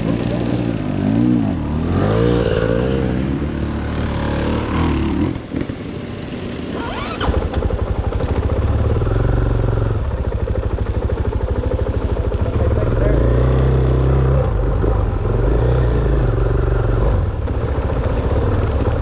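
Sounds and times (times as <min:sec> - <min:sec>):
dirt bike engine revving: 0:00.0 - 0:05.7, 0:12.5 - 0:17.4.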